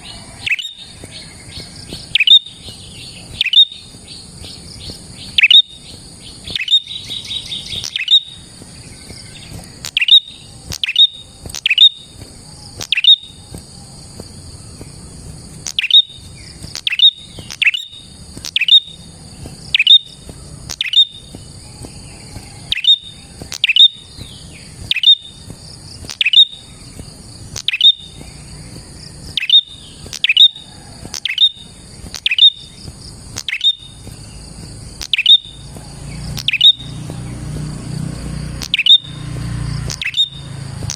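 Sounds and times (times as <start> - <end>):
bird calling sharp high notes: 0.0 - 1.0, 2.1 - 2.6, 3.2 - 3.9, 5.2 - 8.5, 9.7 - 12.1, 12.7 - 13.5, 15.6 - 19.1, 19.7 - 21.3, 22.6 - 24.1, 24.9 - 25.4, 27.6 - 28.2, 29.3 - 32.7, 33.4 - 34.0, 35.0 - 35.6, 36.3 - 37.1, 38.6 - 39.2, 39.8 - 40.9
bird rattling trill: 0.0 - 40.9
steady high buzz: 0.0 - 40.9.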